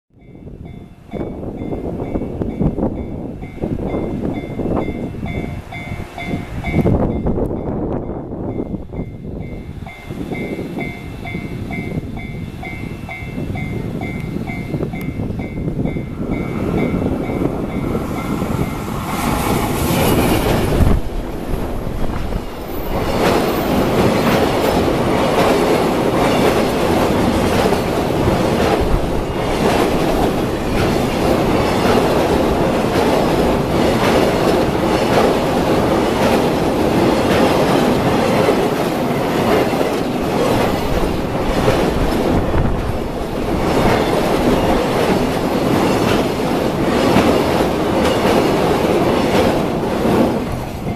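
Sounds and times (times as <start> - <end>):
freight train passing at speed: 0.1 - 50.9
wheels clacking over rail joints: 14.1 - 50.9.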